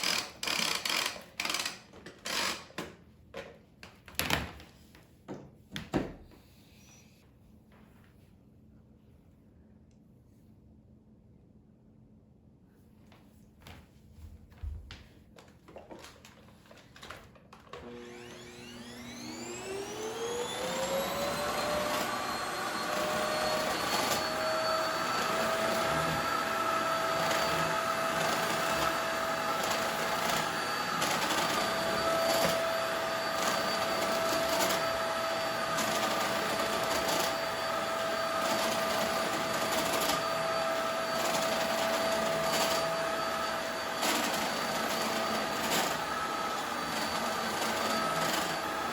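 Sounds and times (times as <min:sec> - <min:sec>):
vacuum cleaner motor whining: 0:17.0 - 0:48.9.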